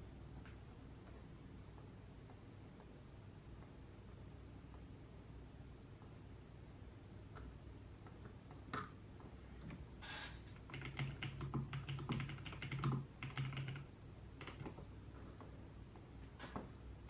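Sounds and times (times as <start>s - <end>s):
keyboard typing: 10.5s - 15.5s.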